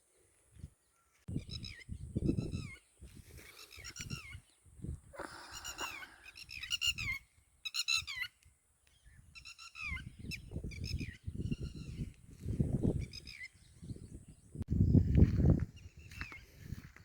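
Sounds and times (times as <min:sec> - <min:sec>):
birds calling shrilly: 0:00.9 - 0:04.6, 0:05.2 - 0:12.2, 0:12.9 - 0:13.9.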